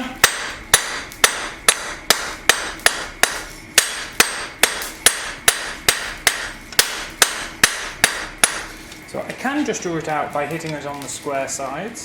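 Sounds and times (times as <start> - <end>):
hammer striking steel on anvil: 0.1 - 8.7.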